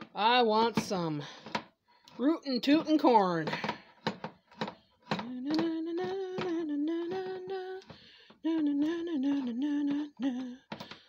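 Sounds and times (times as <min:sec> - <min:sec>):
clatter of kitchen work: 0:00.8 - 0:08.0
woman humming: 0:05.1 - 0:10.9.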